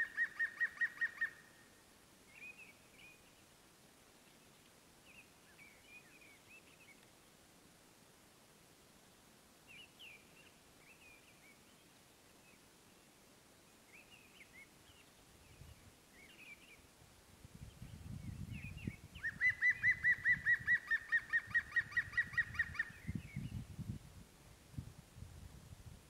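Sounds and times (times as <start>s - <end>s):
faint bird chirps: 0.0s - 3.6s, 4.2s - 7.4s, 9.6s - 16.9s, 17.6s - 23.7s.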